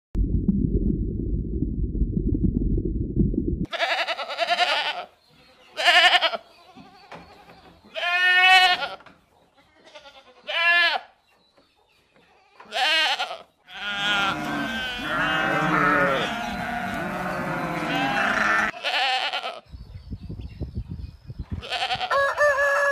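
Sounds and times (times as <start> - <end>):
low muffled rumble: 0.2 - 3.7
goats bleating: 3.7 - 7.0, 7.9 - 9.0, 9.8 - 11.1, 12.6 - 19.6.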